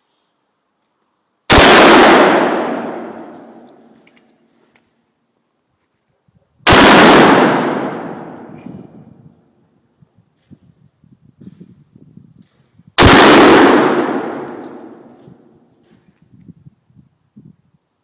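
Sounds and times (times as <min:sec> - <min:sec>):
rifle shots ringing out: 0:01.5 - 0:03.8, 0:06.6 - 0:09.0, 0:13.0 - 0:15.6.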